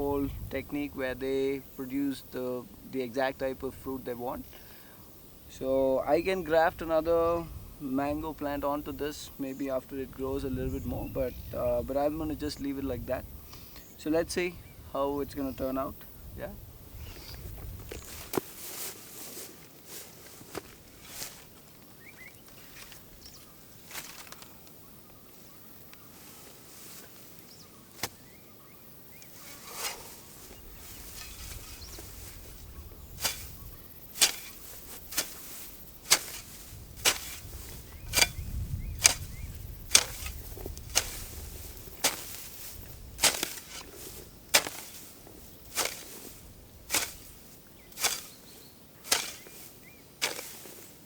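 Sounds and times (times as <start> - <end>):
hand tool striking hard: 33.2 - 33.6, 34.2 - 38.4, 39.0 - 39.3, 39.9 - 41.2, 42.0 - 42.4, 43.2 - 43.9, 44.5 - 45.0, 45.7 - 46.1, 46.9 - 47.3, 48.0 - 48.4, 49.0 - 49.6, 50.2 - 50.7.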